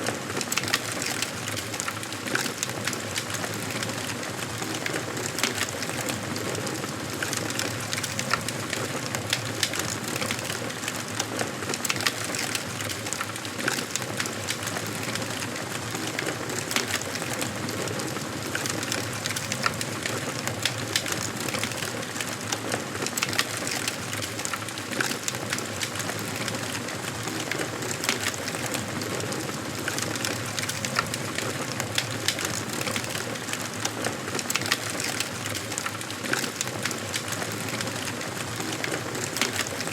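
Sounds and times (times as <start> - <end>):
wood fire crackling: 0.1 - 39.9.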